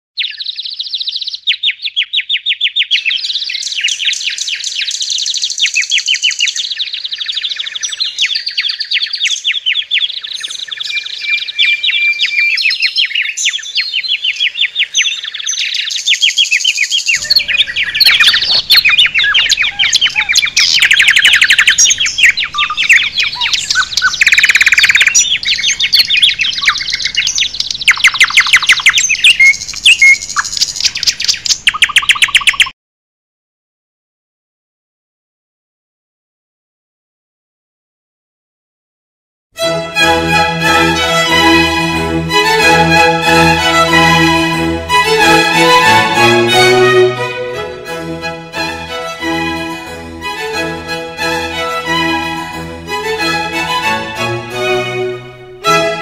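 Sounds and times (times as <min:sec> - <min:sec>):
songbirds chirping and trilling: 0:00.2 - 0:32.7.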